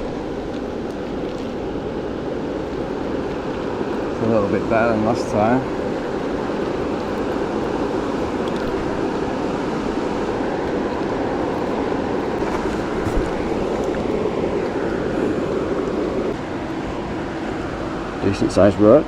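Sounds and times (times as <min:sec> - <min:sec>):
river water rushing: 0:00.0 - 0:18.6.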